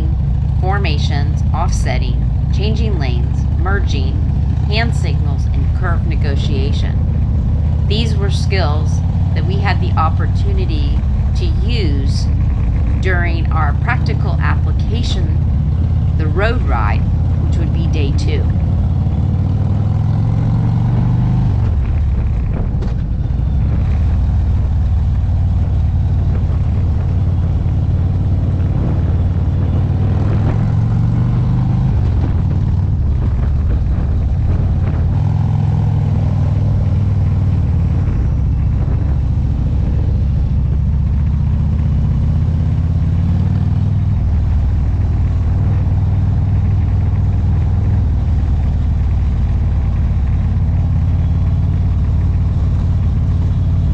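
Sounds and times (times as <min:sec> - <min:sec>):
motorcycle engine revving: 0:18.5 - 0:53.9.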